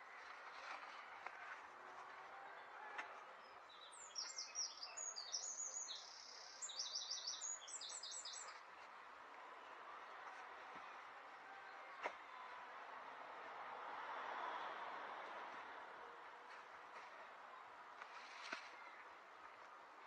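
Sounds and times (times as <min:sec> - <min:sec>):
outdoor background noise: 0:00.0 - 0:20.0
songbird twittering: 0:03.7 - 0:08.6.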